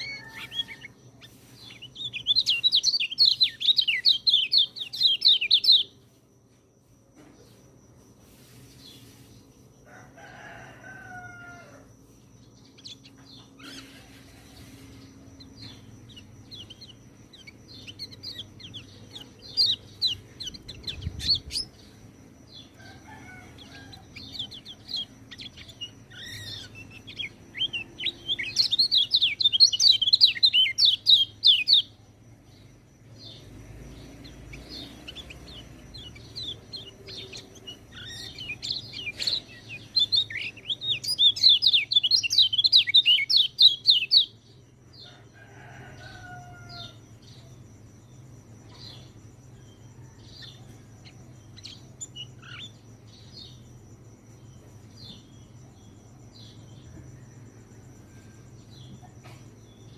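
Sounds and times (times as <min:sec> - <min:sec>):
bird singing high-pitched trills: 0:00.0 - 0:06.2, 0:12.3 - 0:32.0, 0:33.3 - 0:44.5.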